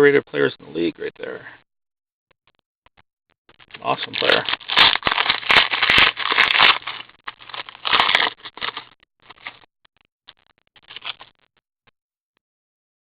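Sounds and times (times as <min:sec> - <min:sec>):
foil wrapper crinkling and tearing: 0:03.7 - 0:09.6, 0:10.8 - 0:11.3
cards clicking and rustling: 0:03.8 - 0:09.6.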